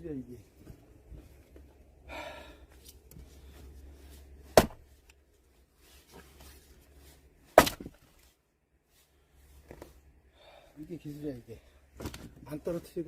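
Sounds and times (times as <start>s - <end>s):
axe splitting logs: 4.5s - 4.9s, 7.5s - 8.1s.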